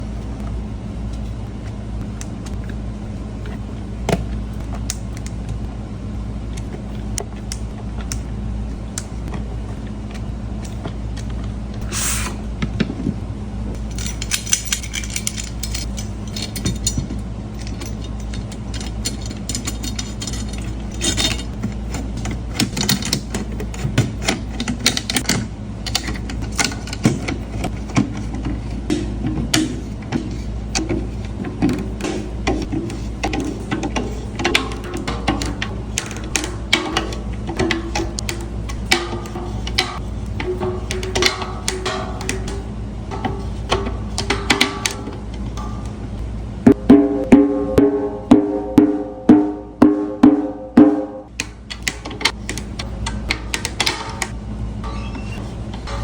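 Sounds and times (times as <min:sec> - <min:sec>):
steady low hum: 0:00.0 - 0:56.0
metallic clicks of drum hardware: 0:28.9 - 0:46.3.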